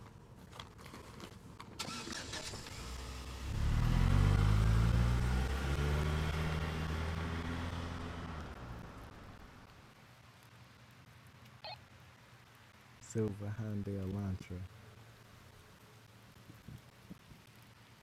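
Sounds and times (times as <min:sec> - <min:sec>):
car engine pulling away: 0:01.8 - 0:09.6.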